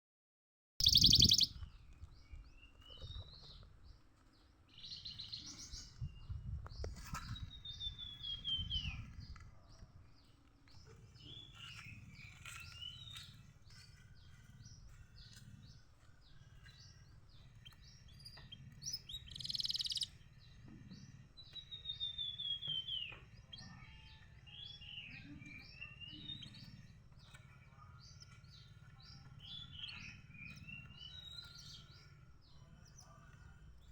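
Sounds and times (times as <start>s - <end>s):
canary singing: 0.8s - 1.7s, 16.2s - 33.9s
faint low rumble: 0.8s - 33.9s.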